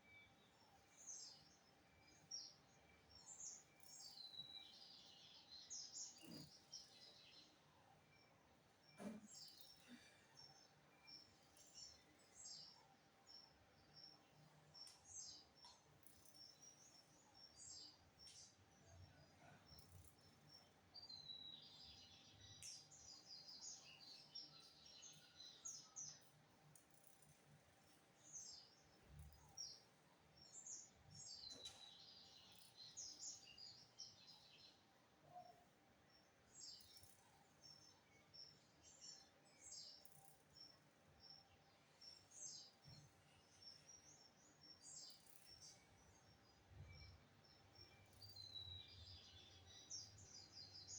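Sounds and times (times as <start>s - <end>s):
bird chirps: 0.0s - 50.9s.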